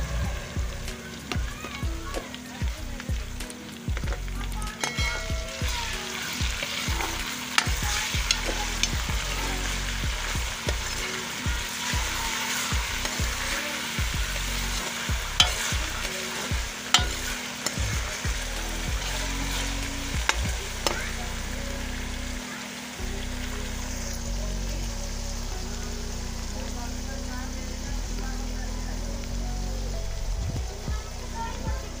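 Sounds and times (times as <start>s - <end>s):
onions sizzling in hot oil: 0.0s - 32.0s
metal spoon scraping pot: 4.8s - 5.8s, 15.4s - 17.8s.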